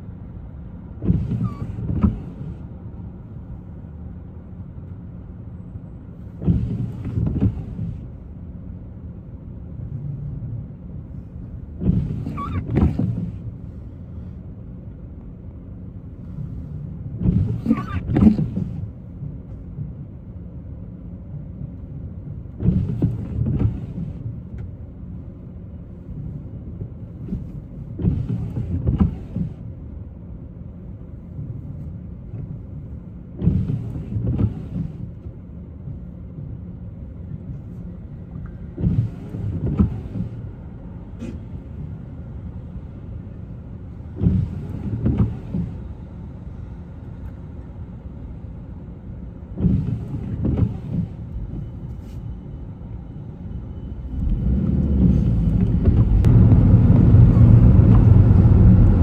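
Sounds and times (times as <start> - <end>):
car road and engine noise: 0.0 - 59.0
windshield wipers sweeping: 1.0 - 2.6, 6.2 - 8.2, 11.1 - 14.4, 16.1 - 19.1, 22.5 - 29.7, 31.2 - 59.0.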